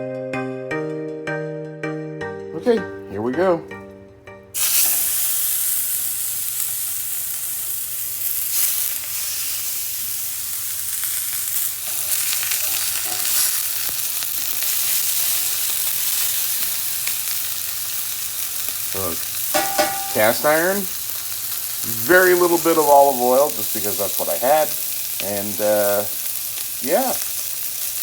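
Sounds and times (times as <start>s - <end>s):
meat sizzling in a pan: 4.6s - 28.0s.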